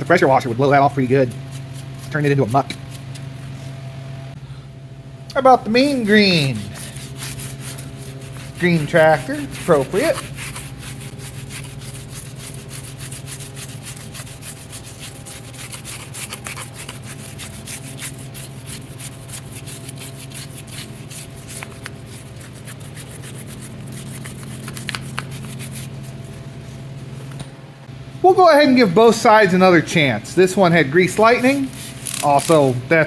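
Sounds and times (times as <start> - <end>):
scrubbing greasy metal: 0.0 - 3.7, 5.7 - 27.2
steady low hum: 0.0 - 33.0.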